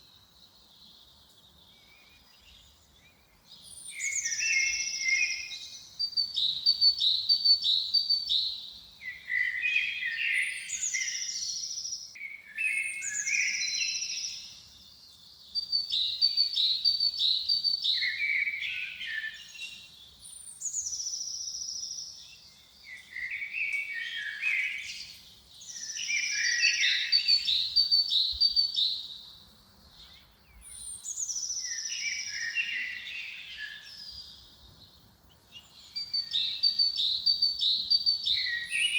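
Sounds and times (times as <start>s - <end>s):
songbird whistling and trilling: 1.7s - 14.6s, 15.4s - 29.2s, 30.0s - 34.5s, 35.6s - 38.9s.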